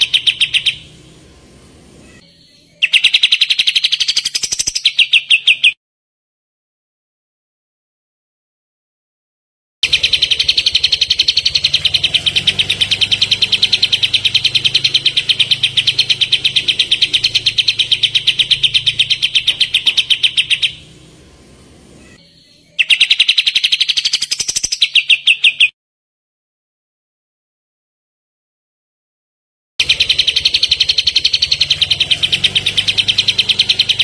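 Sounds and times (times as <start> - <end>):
songbird trilling: 0.0 - 1.2, 2.0 - 5.8, 9.8 - 21.4, 22.0 - 25.7, 29.8 - 34.0.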